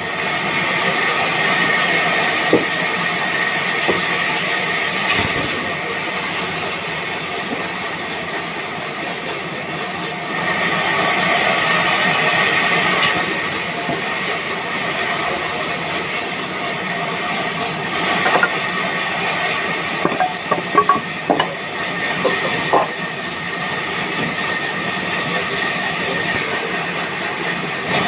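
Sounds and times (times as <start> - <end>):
sawmill machinery whining: 0.0 - 28.0
sharp knocks and clanks: 2.4 - 3.0, 3.8 - 4.3, 5.0 - 5.8, 18.2 - 18.7, 20.0 - 23.2.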